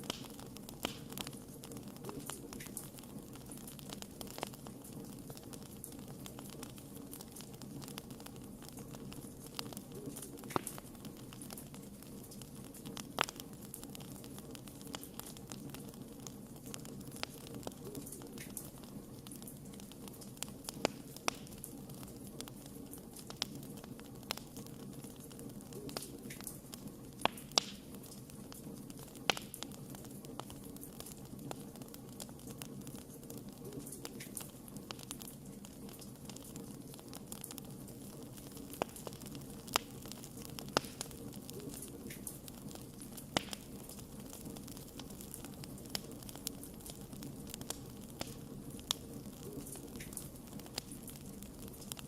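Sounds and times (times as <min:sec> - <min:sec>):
campfire crackling: 0:00.0 - 0:52.0.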